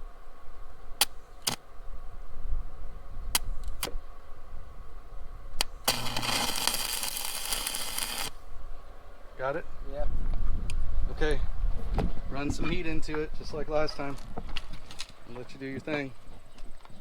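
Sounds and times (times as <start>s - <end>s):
arc welder strikes: 5.6s - 8.4s
welding crackle: 5.6s - 8.4s.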